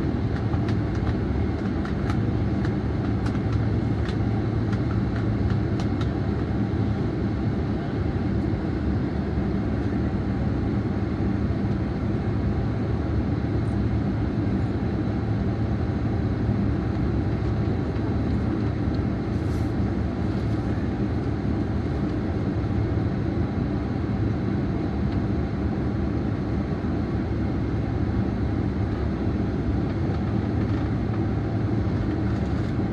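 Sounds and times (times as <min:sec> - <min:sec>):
airliner cabin hum: 0:00.0 - 0:32.9.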